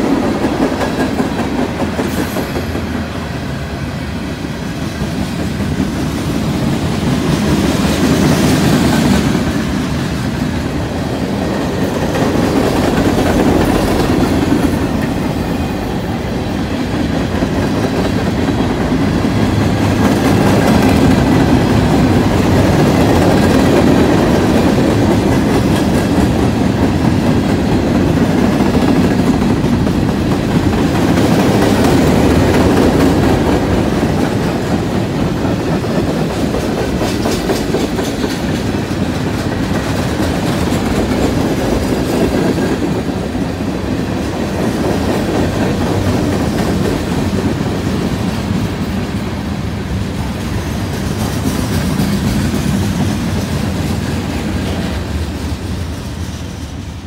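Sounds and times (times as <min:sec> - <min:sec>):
steel wheels rumbling on rail: 0:00.0 - 0:57.0
wheels clacking over rail joints: 0:05.0 - 0:49.0.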